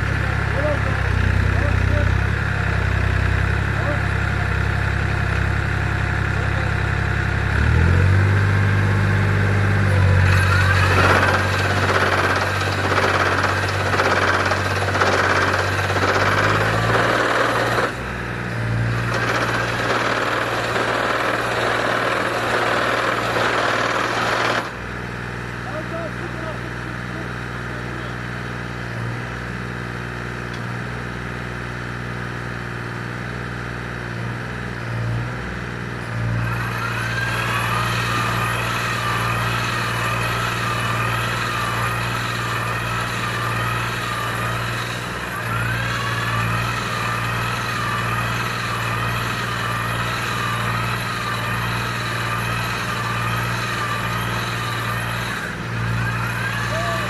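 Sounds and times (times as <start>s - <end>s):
tractor engine hum: 0.0s - 57.0s
wavering machine whine: 7.6s - 22.4s, 36.1s - 57.0s.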